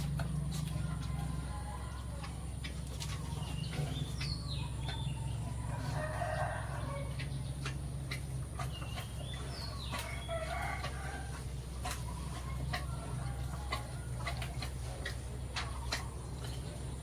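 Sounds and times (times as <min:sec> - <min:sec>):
steady low hum: 0:00.0 - 0:17.0
rooster crowing: 0:05.7 - 0:07.2, 0:10.0 - 0:11.4.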